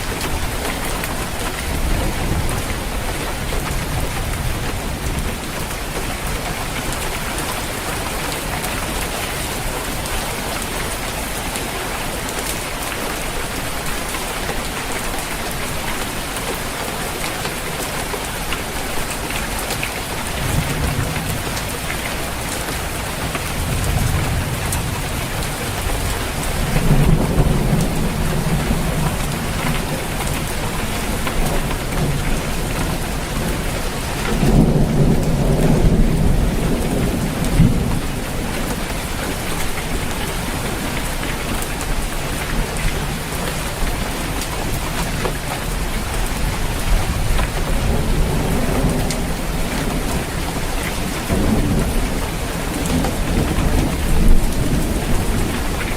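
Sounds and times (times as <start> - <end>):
rain falling on a roof: 0.0 - 55.9
thunder rumbling: 20.3 - 40.5.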